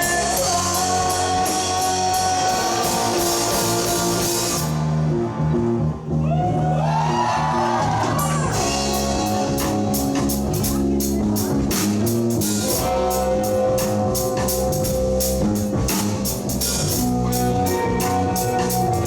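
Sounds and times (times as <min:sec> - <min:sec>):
drum kit: 0:00.0 - 0:05.8, 0:07.0 - 0:19.0
bass guitar: 0:00.0 - 0:19.0
electric guitars: 0:00.0 - 0:19.0
guitar bent notes: 0:08.4 - 0:19.0.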